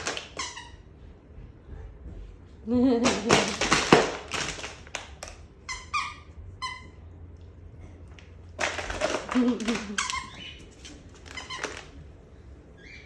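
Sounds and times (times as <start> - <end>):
dog toy squeaking: 0.0 - 0.8, 5.6 - 7.0, 9.0 - 10.6, 11.2 - 11.9.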